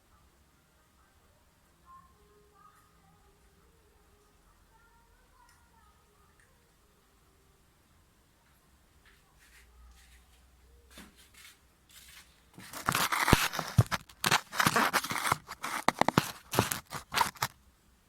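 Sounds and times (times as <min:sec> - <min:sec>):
handling noise at microphone: 0:09.0 - 0:17.6.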